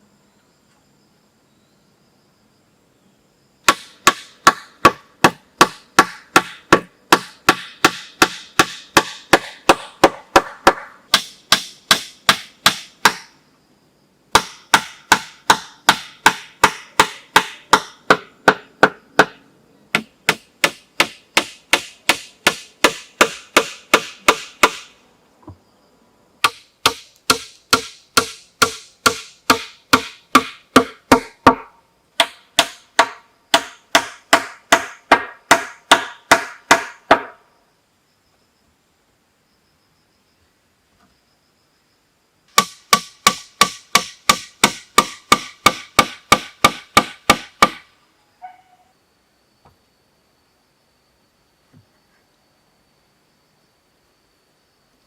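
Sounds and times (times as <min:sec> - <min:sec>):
tool striking wood: 0:03.7 - 0:13.3, 0:14.3 - 0:24.9, 0:26.4 - 0:37.4, 0:42.5 - 0:47.8.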